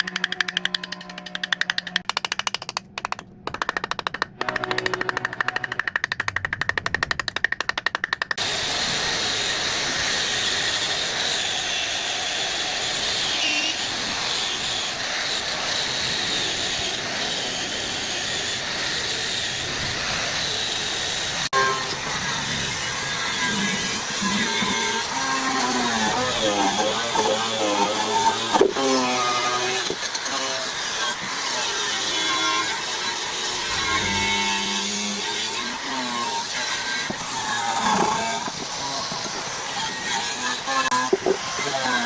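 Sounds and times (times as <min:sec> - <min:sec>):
power tool hammering: 0:21.5 - 0:42.0.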